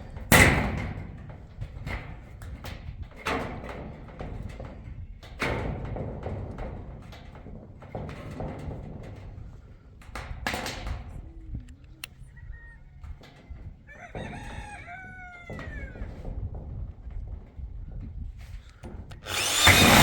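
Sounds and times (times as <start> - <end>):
rooster crowing: 13.9 - 16.0.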